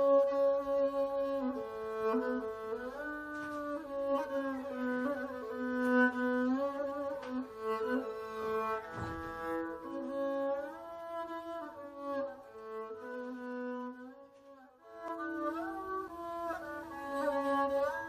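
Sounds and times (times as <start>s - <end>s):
bowed string instrument melody: 0.0s - 18.0s.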